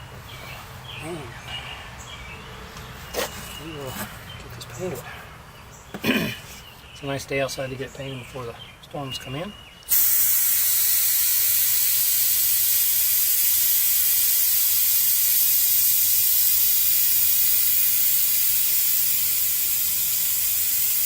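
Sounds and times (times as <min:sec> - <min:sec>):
airbrush hissing: 0:09.9 - 0:21.0.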